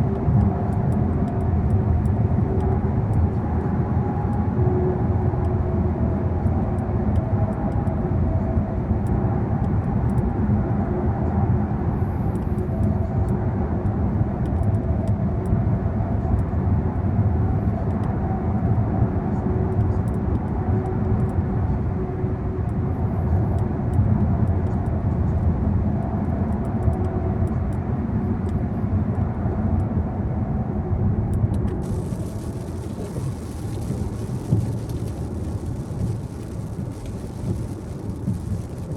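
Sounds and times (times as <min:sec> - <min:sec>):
car road noise from inside: 0:19.1 - 0:38.9
bright hiss: 0:31.8 - 0:38.9.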